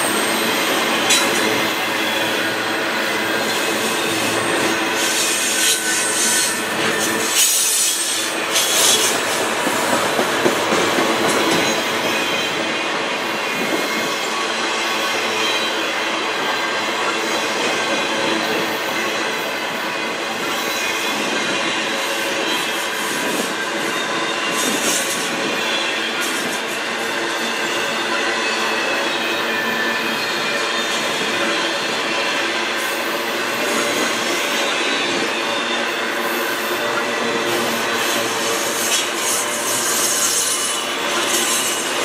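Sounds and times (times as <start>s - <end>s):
high-pitched wheel squeal: 0.0s - 9.4s, 27.3s - 42.0s.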